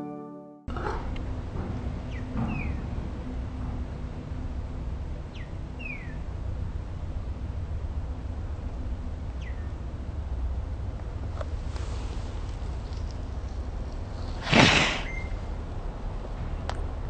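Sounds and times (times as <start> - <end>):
low rumble: 0.7 - 17.0
high falling bird chirps: 5.3 - 6.3, 14.6 - 15.5.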